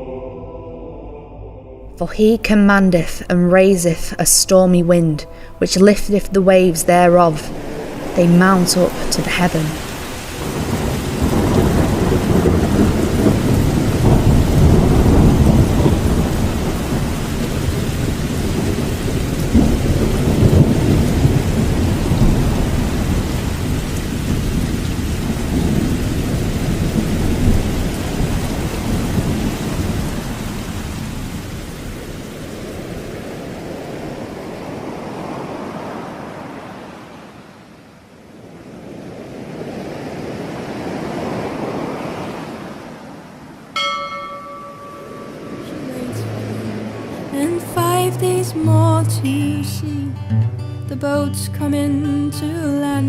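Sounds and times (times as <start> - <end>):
heavy rain: 2.1 - 50.5
soft rushing sound: 5.1 - 10.9
rolling thunder: 7.4 - 34.4.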